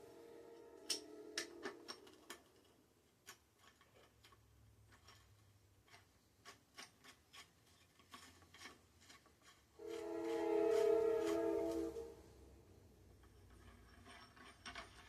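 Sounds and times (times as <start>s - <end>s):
hand tools clicking and tapping: 0.8s - 11.9s.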